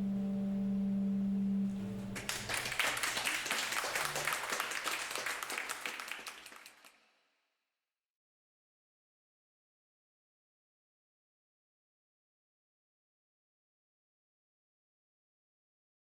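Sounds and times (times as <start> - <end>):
applause: 2.2 - 7.1.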